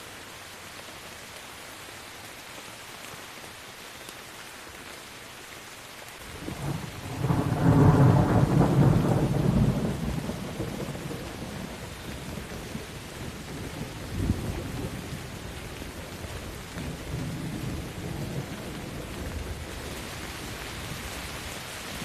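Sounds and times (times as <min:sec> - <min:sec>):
rain falling: 0:00.0 - 0:22.0
thunder rumbling: 0:06.4 - 0:22.0.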